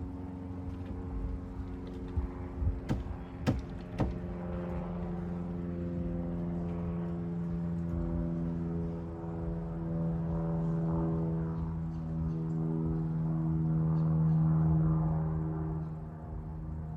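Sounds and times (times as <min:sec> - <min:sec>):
sharp knocks: 0:02.9 - 0:04.3.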